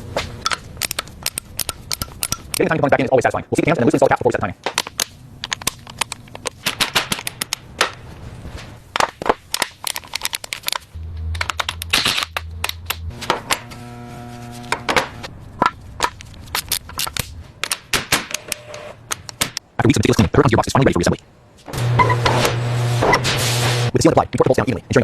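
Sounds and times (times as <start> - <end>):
metallic clicks of tools: 0.4 - 2.7
short low hum: 13.0 - 15.3.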